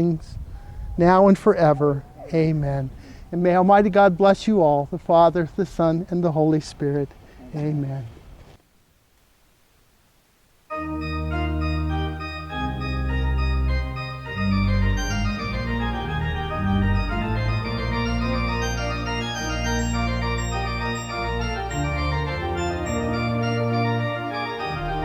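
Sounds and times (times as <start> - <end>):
organ chords: 10.7 - 25.0.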